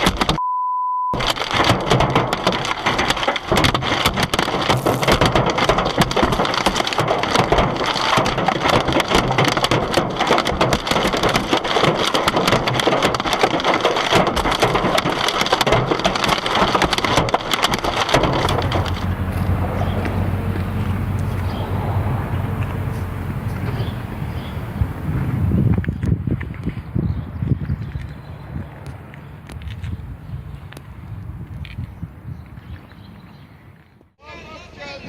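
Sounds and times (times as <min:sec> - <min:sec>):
hailstones pelting a car: 0:01.2 - 0:25.9
low hum: 0:18.3 - 0:25.8.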